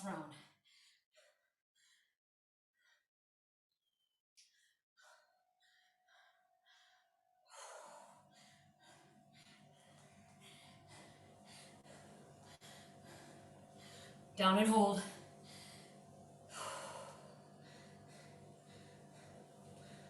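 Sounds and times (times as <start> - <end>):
woman breathing heavily: 0.0 - 2.2, 4.4 - 20.0
faint steady hum: 5.6 - 20.0.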